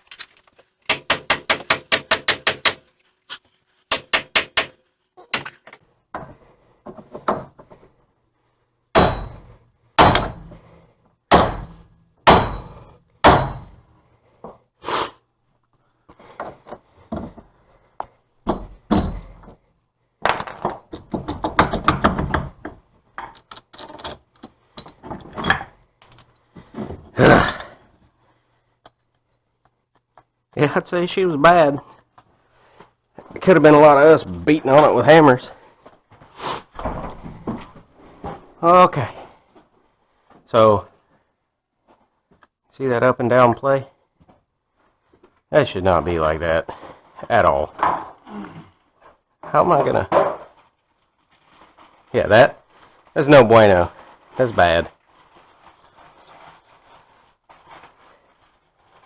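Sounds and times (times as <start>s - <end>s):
hammer striking metal: 0.1s - 2.9s, 3.9s - 5.8s, 9.0s - 10.4s, 11.3s - 13.7s.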